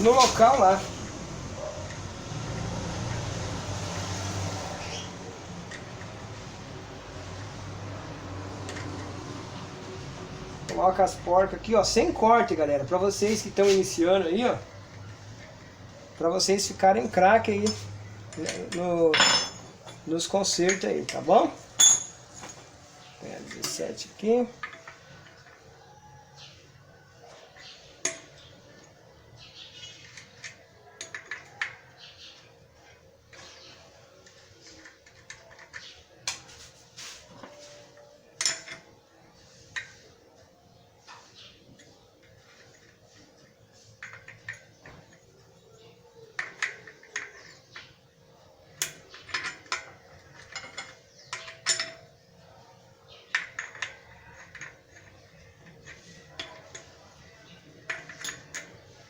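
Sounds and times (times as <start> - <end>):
metallic clinks of wrenches: 17.5 - 21.2, 21.8 - 22.6, 48.8 - 52.2, 57.9 - 58.8
soft rustling: 36.4 - 37.9.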